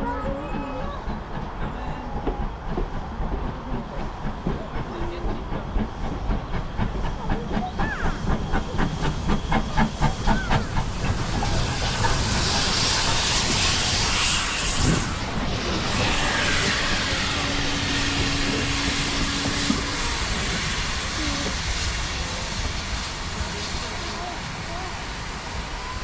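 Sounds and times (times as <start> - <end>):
steam locomotive chuffing: 0.0 - 26.0
loud hiss of steam: 2.5 - 26.0.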